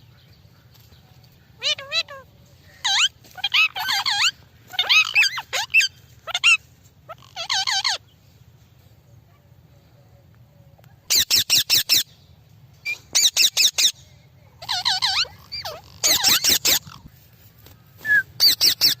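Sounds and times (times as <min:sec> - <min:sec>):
parakeet shrill calls: 0:02.8 - 0:08.0, 0:12.8 - 0:14.0, 0:14.6 - 0:17.1, 0:18.4 - 0:19.0.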